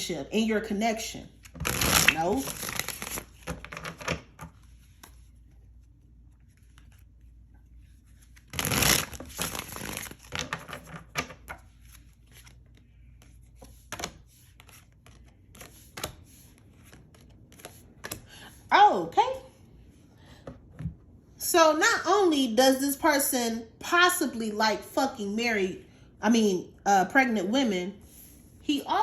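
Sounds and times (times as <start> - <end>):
cards being shuffled: 1.4 - 18.3.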